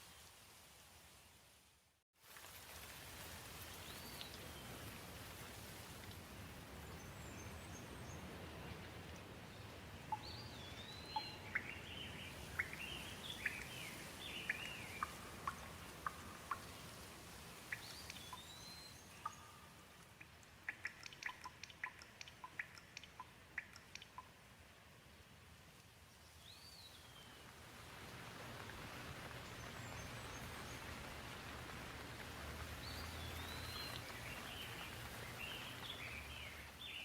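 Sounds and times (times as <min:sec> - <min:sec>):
gentle rain hiss: 0:00.0 - 0:37.0
sharp drips: 0:10.1 - 0:24.4.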